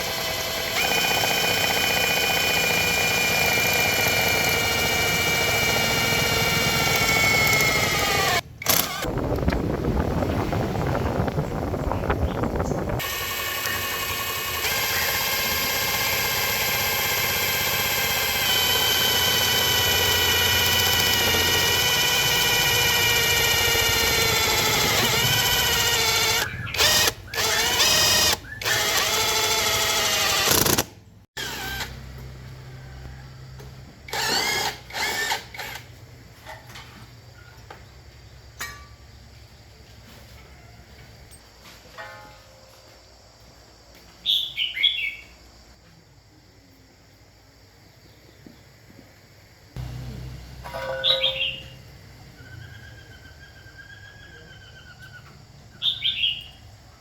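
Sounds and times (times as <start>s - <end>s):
grass trimmer engine running: 0.0s - 9.1s, 13.0s - 28.9s, 49.8s - 50.8s
small motor whining: 0.0s - 9.1s, 13.0s - 32.1s, 34.1s - 35.9s, 49.8s - 50.7s
steady low hum: 49.7s - 51.0s
high whine: 49.8s - 52.6s.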